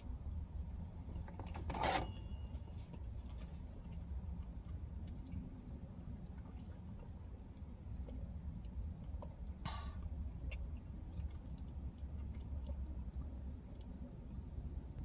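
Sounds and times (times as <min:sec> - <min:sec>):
low rumble inside car: 0:00.0 - 0:15.0
chewing with mouth clicks: 0:03.0 - 0:14.7.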